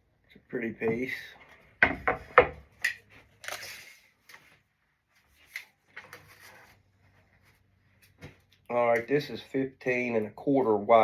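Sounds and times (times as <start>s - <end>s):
wooden boards knocking: 1.8s - 2.6s.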